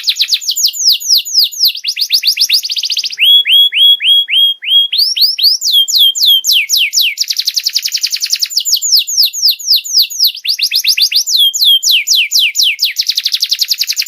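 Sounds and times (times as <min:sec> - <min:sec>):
canary singing: 0:00.0 - 0:14.0.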